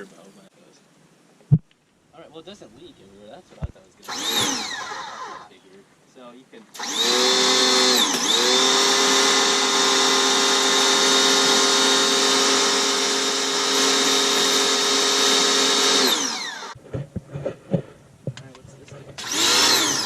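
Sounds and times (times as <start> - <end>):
pressure washer motor whine: 4.0 - 5.6, 6.8 - 16.8, 19.2 - 20.0.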